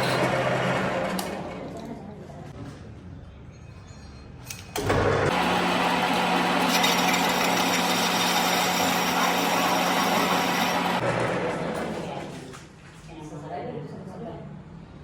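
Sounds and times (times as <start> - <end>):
power tool grinding metal: 5.3 - 11.0.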